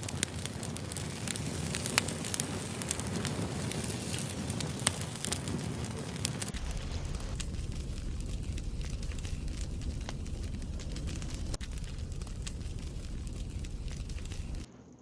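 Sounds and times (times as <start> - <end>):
campfire crackling: 0.0 - 14.7
low rumble: 6.5 - 14.7.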